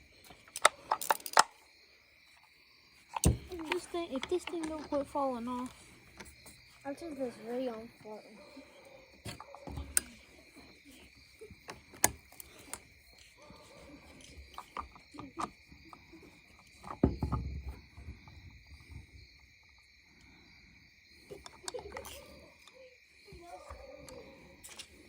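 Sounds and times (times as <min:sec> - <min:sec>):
crickets trilling: 0:00.0 - 0:25.0
tools being handled: 0:00.2 - 0:01.6, 0:03.1 - 0:06.6, 0:09.2 - 0:17.5.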